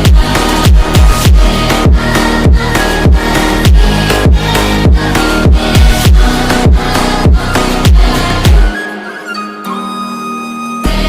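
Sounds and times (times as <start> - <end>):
deep bass kicks: 0.0 - 8.7
electronic dance music: 0.0 - 9.3.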